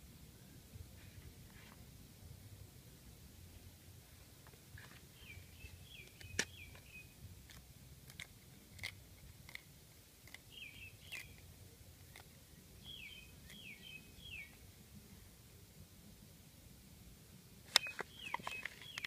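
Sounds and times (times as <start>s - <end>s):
small bird chirping: 4.8s - 8.2s, 10.2s - 14.6s, 17.7s - 19.0s.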